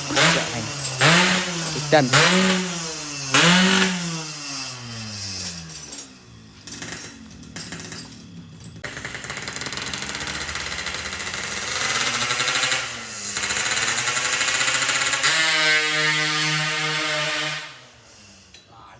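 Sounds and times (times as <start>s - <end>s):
two-stroke engine revving: 0.0s - 6.0s, 8.8s - 18.4s.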